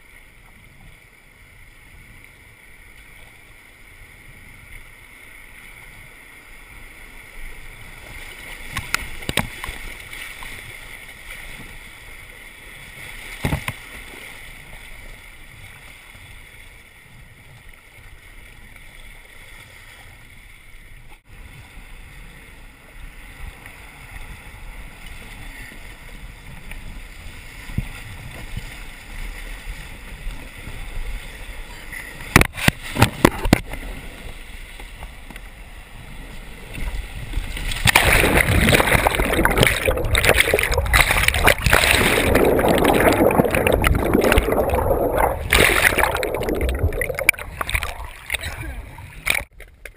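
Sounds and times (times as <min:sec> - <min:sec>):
sharp knocks on kayak: 0:13.4 - 0:13.8
river water rushing: 0:37.6 - 0:49.5.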